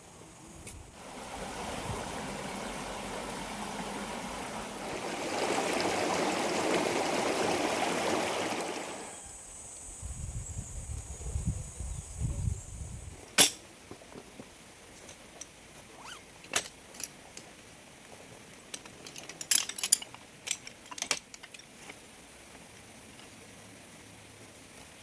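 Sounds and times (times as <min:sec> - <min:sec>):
gear clinking and knocking: 0:18.6 - 0:22.0.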